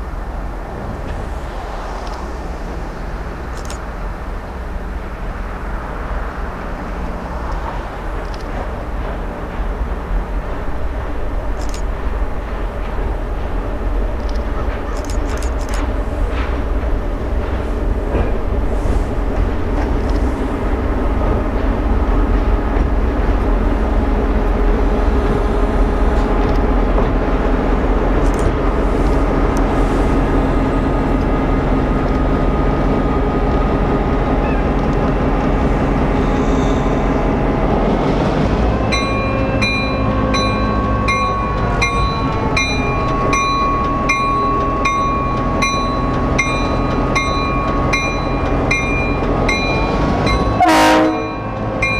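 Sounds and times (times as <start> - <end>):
freight train rumbling by: 0.0 - 51.9
crossing bell ringing: 38.8 - 51.9.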